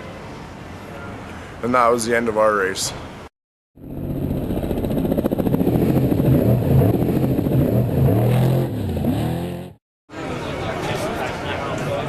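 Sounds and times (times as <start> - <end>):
truck engine revving: 3.9 - 9.8.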